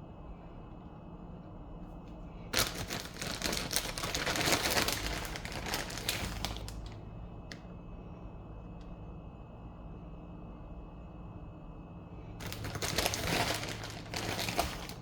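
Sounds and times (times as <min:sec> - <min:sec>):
packaging crinkling: 0:02.6 - 0:07.0, 0:12.4 - 0:15.0.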